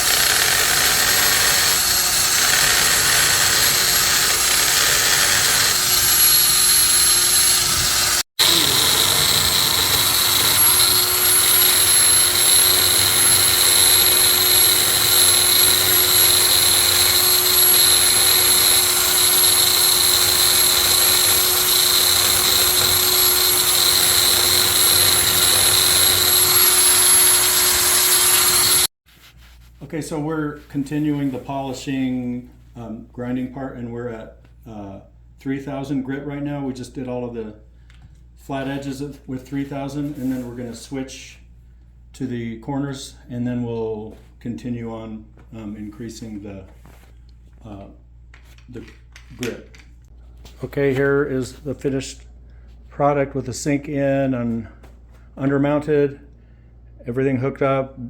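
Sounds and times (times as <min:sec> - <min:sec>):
stone polisher whining and grinding: 0:00.0 - 0:28.9.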